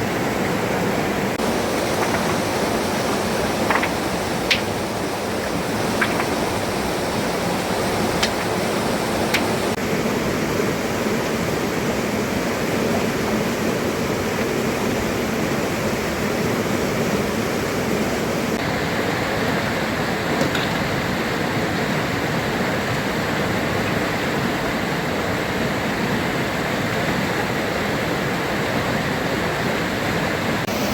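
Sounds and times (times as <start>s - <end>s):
rushing water: 0.0s - 30.9s.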